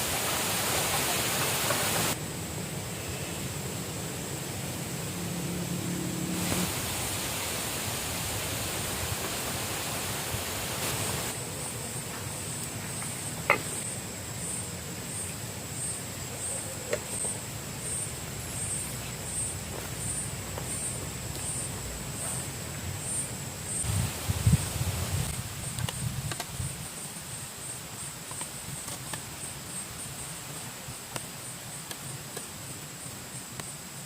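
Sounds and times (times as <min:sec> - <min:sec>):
steady outdoor rushing noise: 0:00.0 - 0:27.1.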